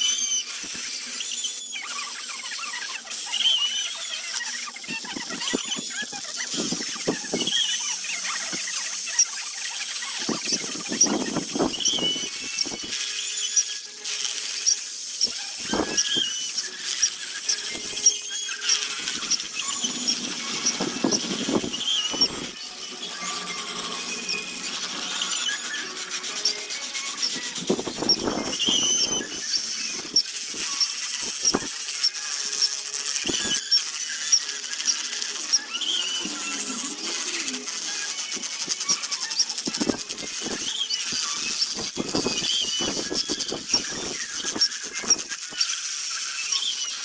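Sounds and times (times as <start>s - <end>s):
short high squeaks: 0.0s - 47.0s
small ticks: 0.0s - 47.0s
hand tool scraping wood: 8.3s - 31.9s.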